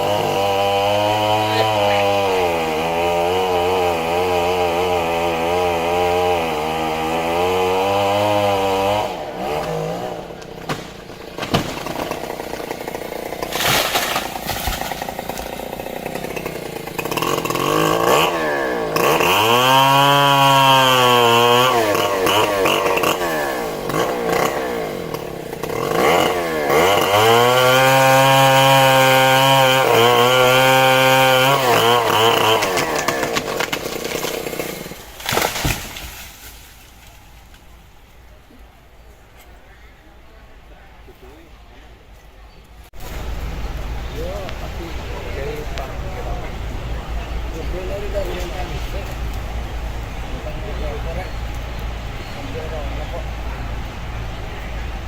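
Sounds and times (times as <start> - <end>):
chainsaw cutting tree trunk: 0.0 - 37.3.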